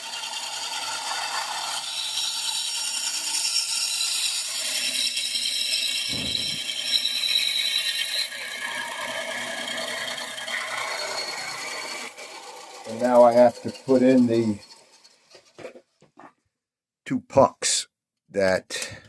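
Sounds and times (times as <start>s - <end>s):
bandsaw running: 0.0s - 15.6s
low thud: 6.1s - 6.6s.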